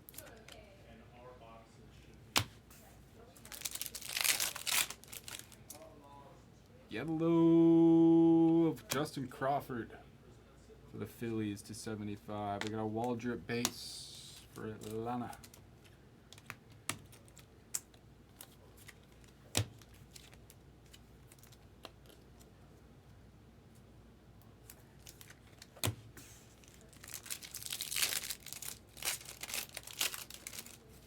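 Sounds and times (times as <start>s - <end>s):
foil card pack crinkling: 3.4s - 5.8s, 24.6s - 31.0s.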